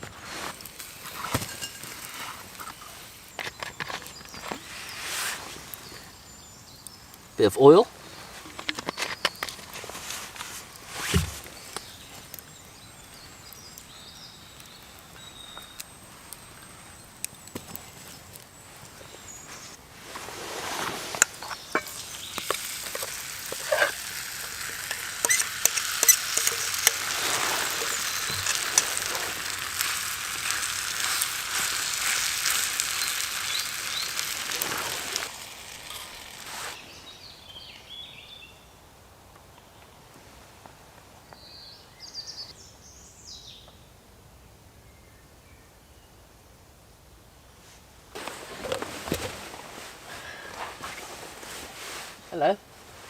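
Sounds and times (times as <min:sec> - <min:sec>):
oil popping and crackling: 0:00.0 - 0:04.8, 0:08.2 - 0:36.8
food sizzling in oil: 0:00.6 - 0:06.8, 0:11.1 - 0:36.8.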